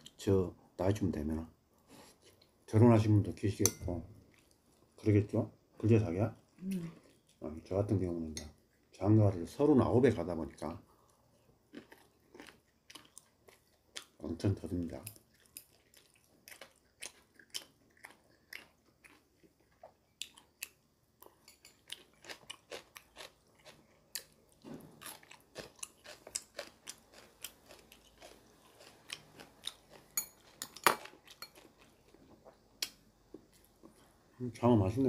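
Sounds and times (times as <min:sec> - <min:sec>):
man chewing food: 0:04.2 - 0:05.1, 0:06.4 - 0:07.4, 0:10.9 - 0:14.3, 0:15.1 - 0:34.3.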